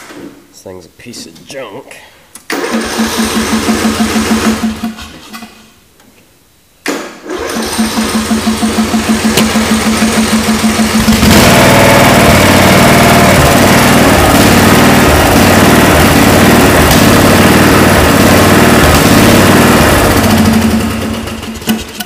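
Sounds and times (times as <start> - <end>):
electric starter cranking: 2.5 - 5.0, 7.2 - 22.0
mower engine running: 2.6 - 4.8, 7.3 - 22.0.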